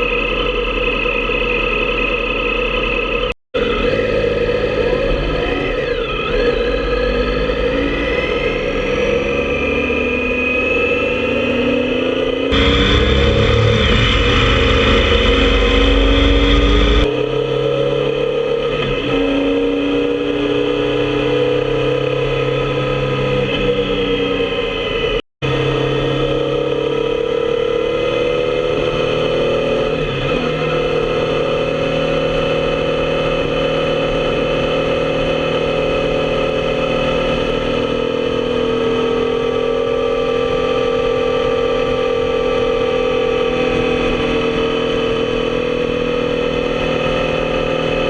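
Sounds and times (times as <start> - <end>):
motorcycle engine running: 0.0 - 6.6, 12.4 - 17.6
loud rushing noise: 12.5 - 17.1.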